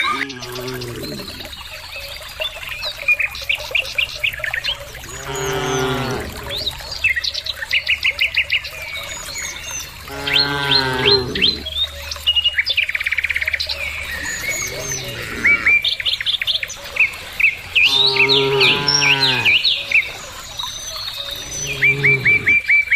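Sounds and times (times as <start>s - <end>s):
cattle mooing: 0.0s - 1.5s, 5.1s - 6.7s, 10.1s - 11.7s, 14.4s - 15.8s, 17.9s - 19.6s, 21.3s - 22.6s
small birds chirping: 0.0s - 22.9s.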